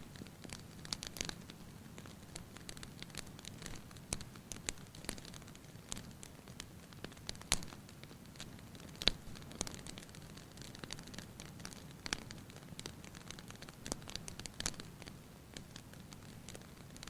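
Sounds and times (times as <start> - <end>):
fire crackling and popping: 0.0 - 17.0
soft steady hiss: 0.0 - 17.0.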